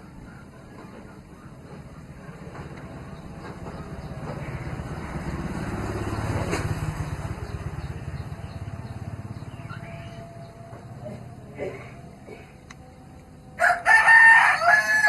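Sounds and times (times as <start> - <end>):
vehicle engine passing by: 2.9 - 13.4.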